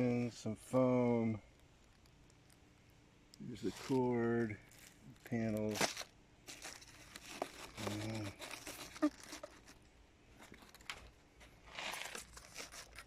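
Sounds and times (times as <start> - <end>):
packing material crinkling: 3.3 - 13.0.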